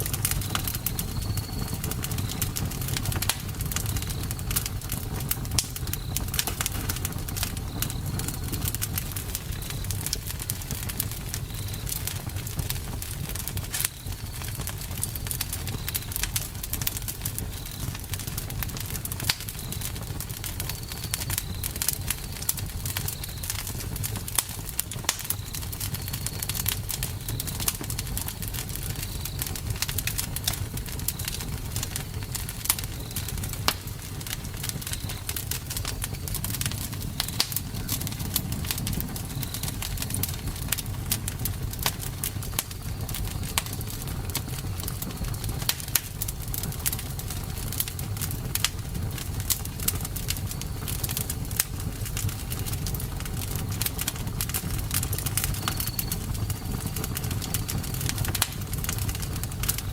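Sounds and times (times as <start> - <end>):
wood fire crackling and popping: 0.0 - 59.9
faint high chirps: 0.4 - 2.5, 55.4 - 57.0
low rumble: 35.6 - 43.2.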